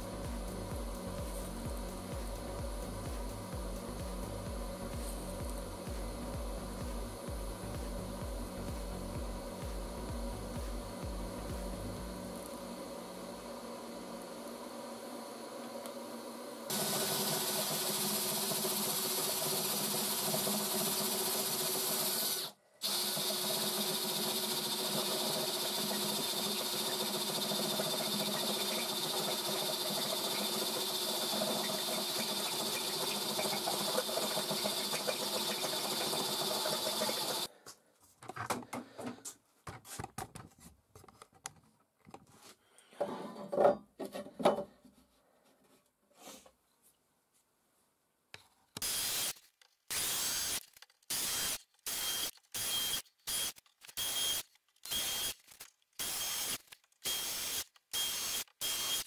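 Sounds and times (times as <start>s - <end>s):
machine hissing with steady tones: 9.4s - 37.5s, 48.8s - 55.4s.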